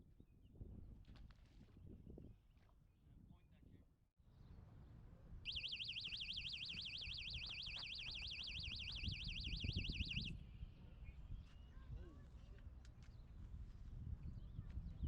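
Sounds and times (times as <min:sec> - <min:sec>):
electronic alarm warbling: 0:05.5 - 0:10.3.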